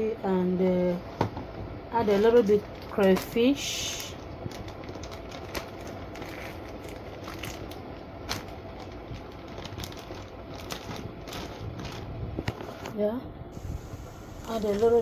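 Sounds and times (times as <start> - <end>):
small clicks and crinkles: 2.1 - 13.0
steady hiss: 13.6 - 15.0.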